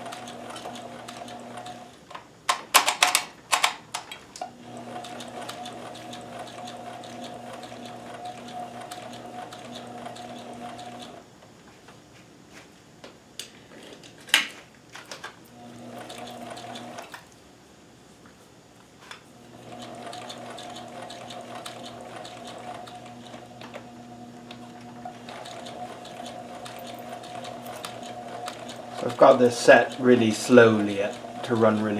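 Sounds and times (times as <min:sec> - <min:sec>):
sewing machine running: 0:00.0 - 0:02.0, 0:04.6 - 0:11.2, 0:15.5 - 0:17.2, 0:19.4 - 0:31.9.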